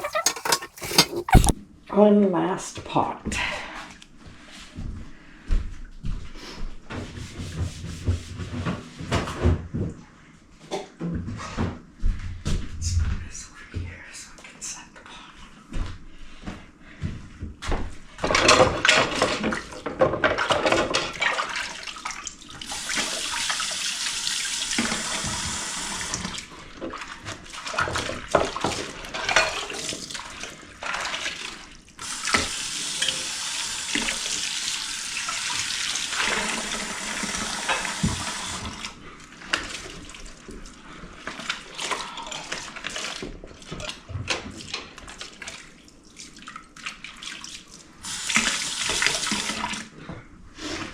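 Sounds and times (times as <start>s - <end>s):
kitchen tap running: 0.0s - 1.6s, 22.7s - 26.4s, 32.0s - 38.9s, 48.0s - 49.8s.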